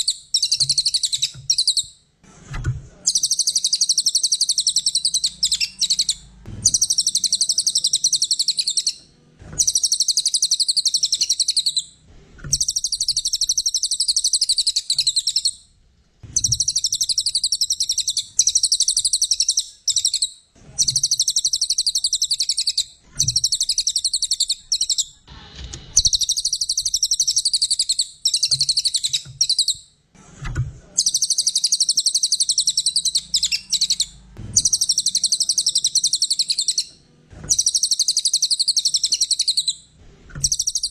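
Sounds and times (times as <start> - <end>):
songbird trilling: 3.1 - 9.0, 9.6 - 11.9, 12.5 - 15.6, 16.4 - 25.1, 26.0 - 29.8, 31.0 - 36.9, 37.5 - 39.8, 40.4 - 40.9.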